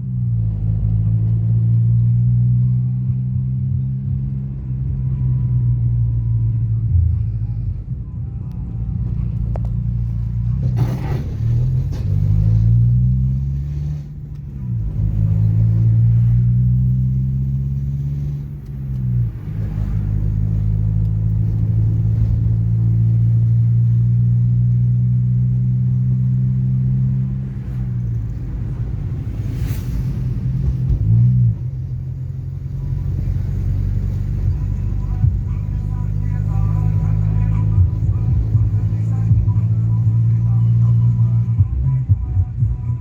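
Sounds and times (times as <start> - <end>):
heavy bass music from car subwoofers: 32.8 - 43.0.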